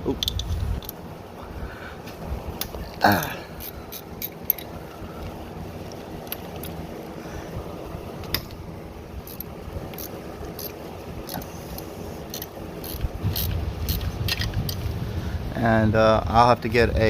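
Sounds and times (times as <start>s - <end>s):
ratchet wrench clicking: 0.2s - 1.0s, 3.6s - 4.7s, 6.2s - 6.8s, 9.2s - 14.8s.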